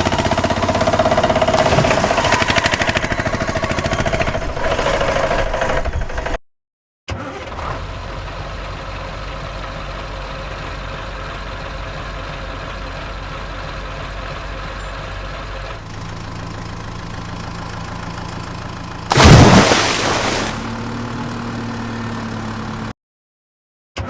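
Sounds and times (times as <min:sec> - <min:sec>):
engine idling: 0:00.0 - 0:06.4, 0:07.8 - 0:19.2
engine idling with low hum: 0:00.0 - 0:06.4, 0:07.7 - 0:19.2, 0:20.4 - 0:22.9.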